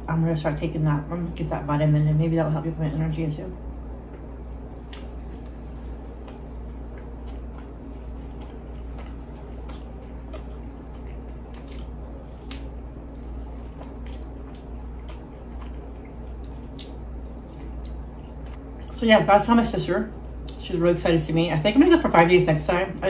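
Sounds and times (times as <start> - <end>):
steady low hum: 0.0 - 23.0
wet chewing with mouth clicks: 4.0 - 19.0, 20.4 - 20.6.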